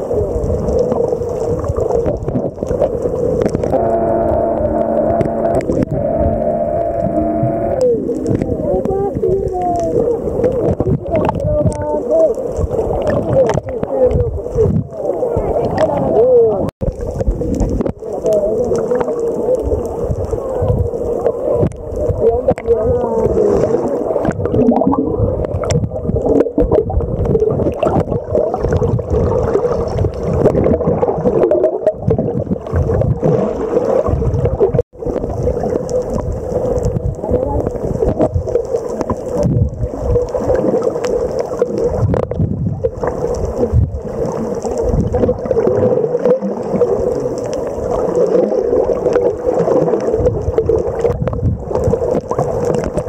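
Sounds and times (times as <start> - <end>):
water sloshing and gurgling: 0.0 - 53.0
boat motor humming: 3.4 - 9.2.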